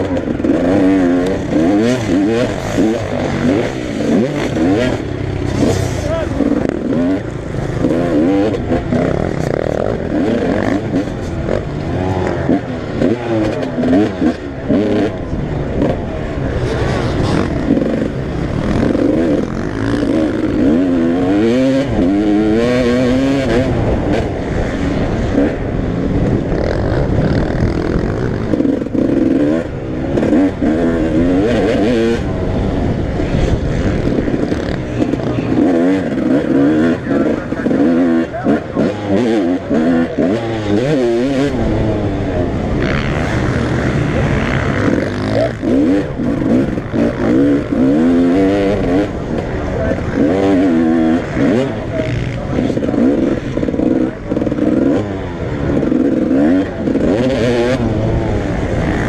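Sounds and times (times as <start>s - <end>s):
motocross bikes revving: 0.0s - 59.0s.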